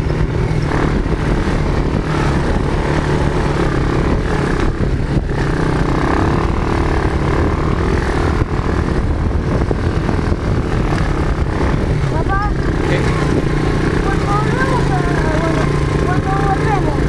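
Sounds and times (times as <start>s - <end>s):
quad bike engine running: 0.0s - 17.0s.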